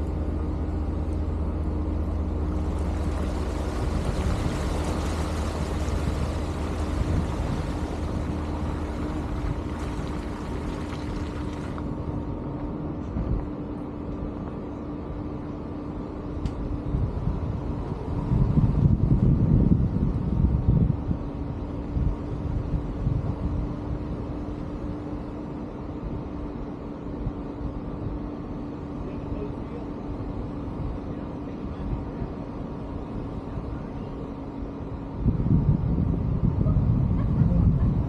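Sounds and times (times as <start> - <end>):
vehicle engine humming: 0.0 - 19.2
road and wind noise: 0.0 - 38.0.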